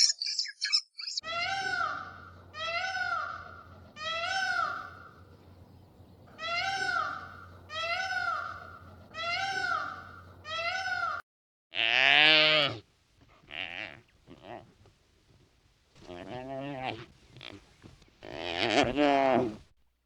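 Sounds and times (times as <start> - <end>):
low drawn-out animal call: 16.0 - 19.6.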